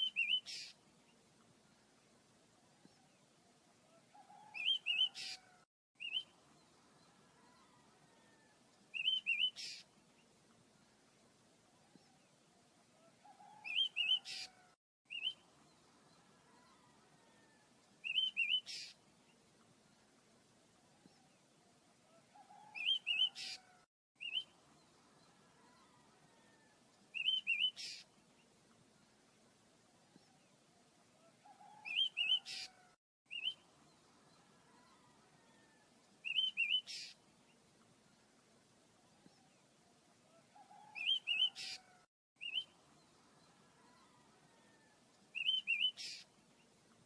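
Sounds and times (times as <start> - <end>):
small birds chirping: 0.0 - 1.2, 40.5 - 47.0.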